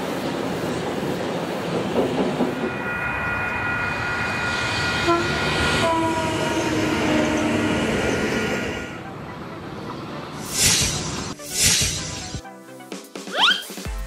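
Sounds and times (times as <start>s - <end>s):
high-speed train passing: 0.0s - 12.4s
train horn: 2.6s - 9.2s.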